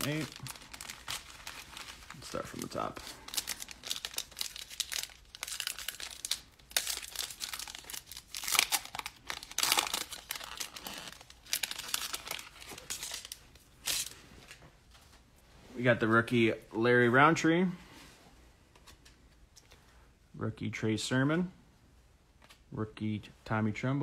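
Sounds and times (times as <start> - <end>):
foil wrapper tearing and crinkling: 0.0 - 14.2.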